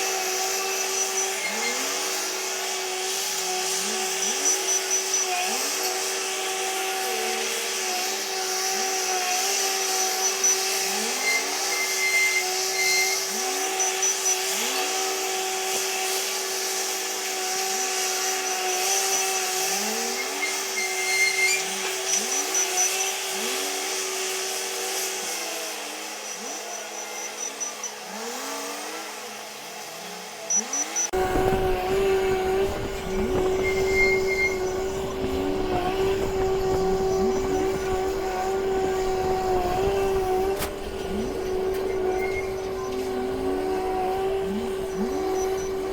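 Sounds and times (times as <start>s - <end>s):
wheel loader diesel engine revving: 31.1s - 45.9s.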